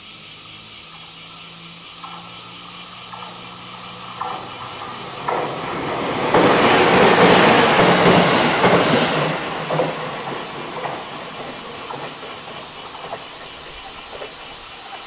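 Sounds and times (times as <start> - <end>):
rush of passing train: 0.1 - 15.0
wheels clacking over rail joints: 1.0 - 15.0.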